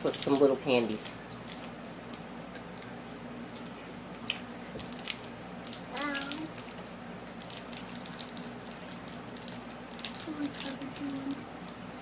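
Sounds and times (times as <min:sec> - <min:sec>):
steady low hum: 0:00.0 - 0:12.0
plastic candy packet crinkling: 0:01.4 - 0:02.2, 0:04.2 - 0:11.8
child's voice: 0:05.9 - 0:06.6, 0:10.2 - 0:11.4.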